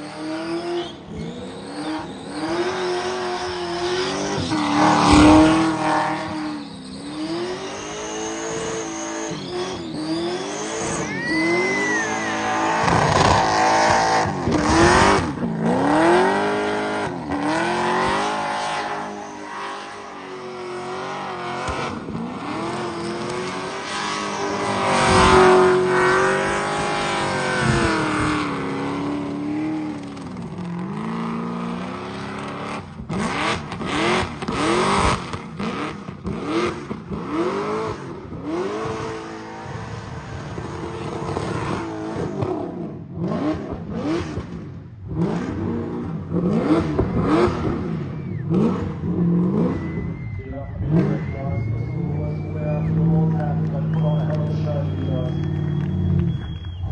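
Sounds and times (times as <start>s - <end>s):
spinning tyres hissing: 0.0s - 32.7s
car engine revving hard: 0.0s - 56.8s.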